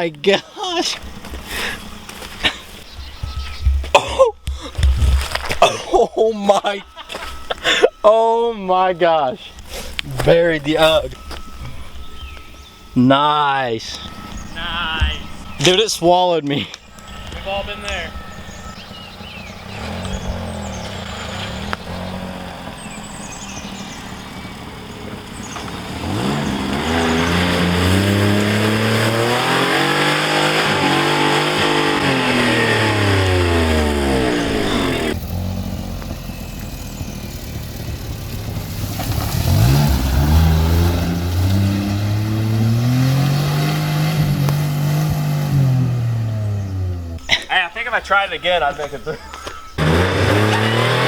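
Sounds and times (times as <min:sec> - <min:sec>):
car engine revving: 0:16.8 - 0:51.0.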